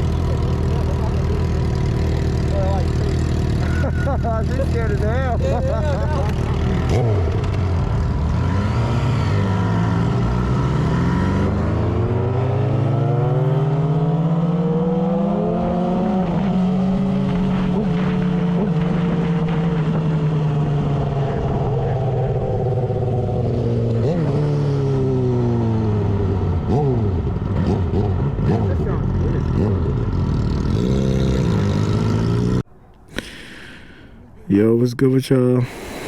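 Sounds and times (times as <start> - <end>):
motorcycle engine running: 0.0 - 13.6.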